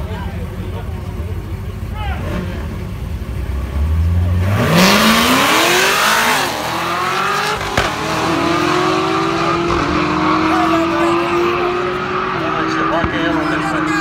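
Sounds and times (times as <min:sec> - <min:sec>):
car engine revving: 0:00.0 - 0:14.0
sharp exhaust crack: 0:04.6 - 0:11.0.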